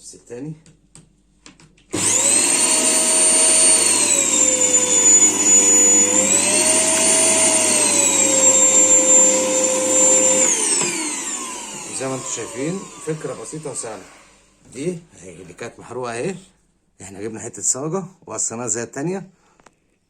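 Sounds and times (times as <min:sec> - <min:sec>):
vacuum cleaner running: 0:01.9 - 0:14.7.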